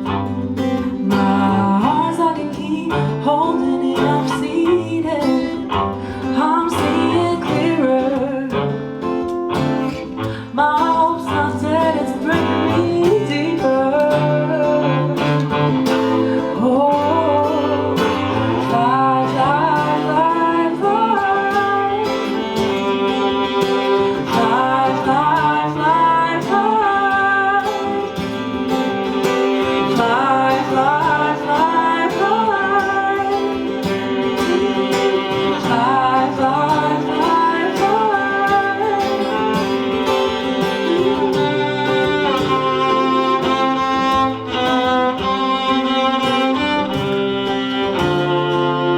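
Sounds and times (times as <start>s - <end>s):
acoustic guitar strumming: 0.0s - 48.9s
cello melody: 0.0s - 48.9s.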